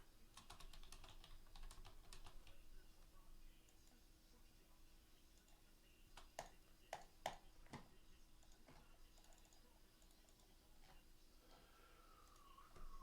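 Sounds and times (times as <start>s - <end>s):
computer keyboard clicks: 0.3s - 2.6s, 8.4s - 10.5s.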